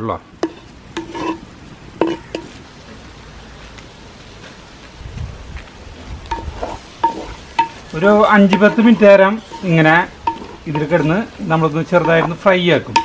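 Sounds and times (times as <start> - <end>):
meat sizzling in a pot: 0.4 - 3.1, 6.0 - 13.0
wooden spatula knocking pot: 6.3 - 13.0.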